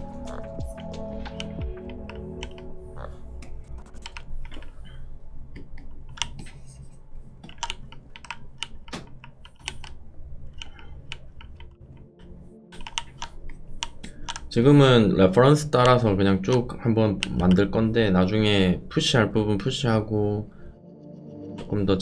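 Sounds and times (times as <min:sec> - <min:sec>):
keyboard keys tapping: 0:00.0 - 0:06.6.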